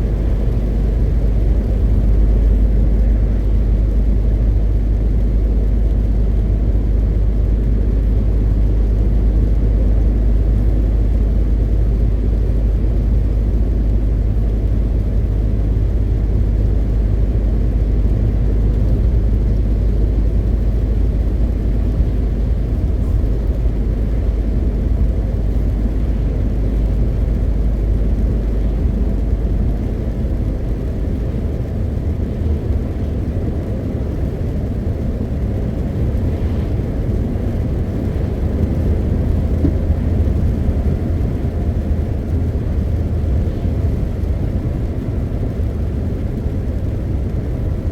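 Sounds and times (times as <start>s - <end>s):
road noise: 0.0s - 47.9s
truck diesel engine drone: 0.0s - 47.9s.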